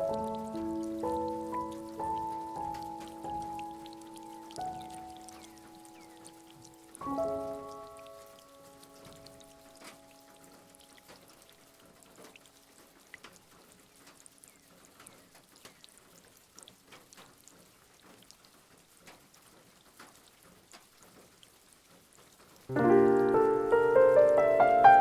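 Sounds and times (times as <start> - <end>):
piano music: 0.0 - 11.7, 22.7 - 25.0
faint rain: 0.0 - 25.0
wood fire crackling: 0.0 - 25.0.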